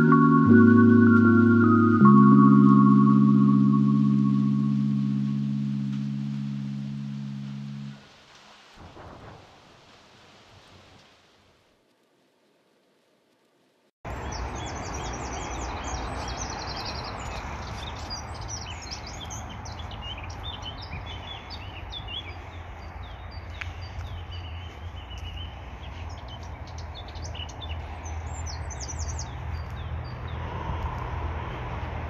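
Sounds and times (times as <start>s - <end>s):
steady low rumble: 0.0s - 8.0s
songbirds chirping and trilling: 14.1s - 31.7s.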